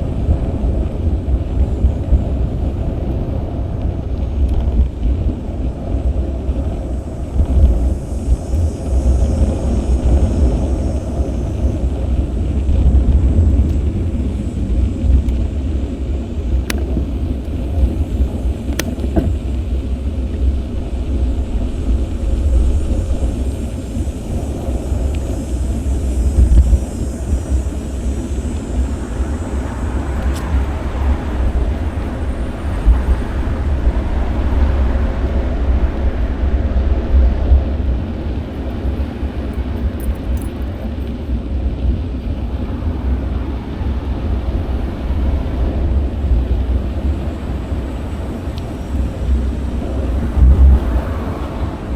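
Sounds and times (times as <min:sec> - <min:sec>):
wind buffeting microphone: 0:00.0 - 0:51.9
car traffic: 0:13.6 - 0:20.6, 0:23.3 - 0:51.9
sharp clicks: 0:16.7 - 0:17.0.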